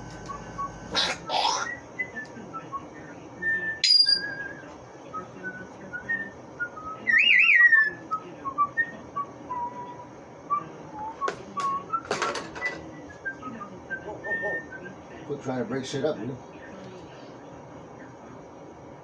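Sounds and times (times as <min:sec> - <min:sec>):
parrot whistling: 0:00.3 - 0:02.1, 0:03.7 - 0:04.6
parrot squeak: 0:00.9 - 0:01.8, 0:03.8 - 0:04.4.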